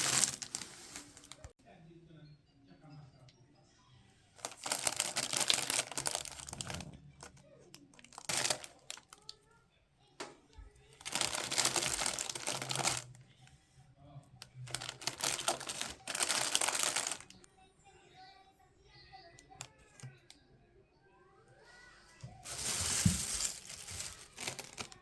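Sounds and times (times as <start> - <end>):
packaging crinkling: 0.0 - 1.5, 4.4 - 7.4, 8.0 - 9.3, 11.0 - 13.1, 14.6 - 17.4, 22.4 - 25.0.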